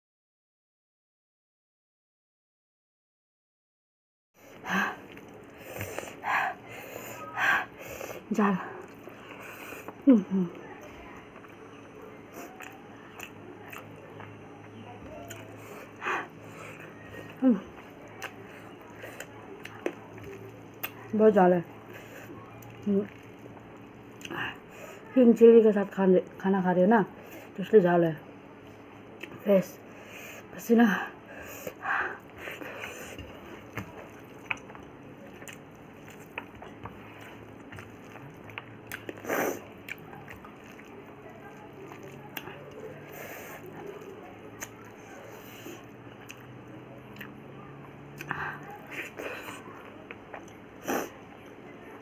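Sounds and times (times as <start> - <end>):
person chewing food: 4.5 - 24.7, 28.6 - 29.4, 31.3 - 51.6.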